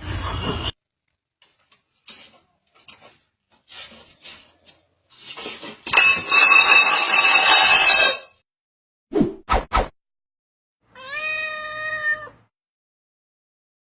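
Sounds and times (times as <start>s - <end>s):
dishes crashing and clattering: 5.9s - 8.3s.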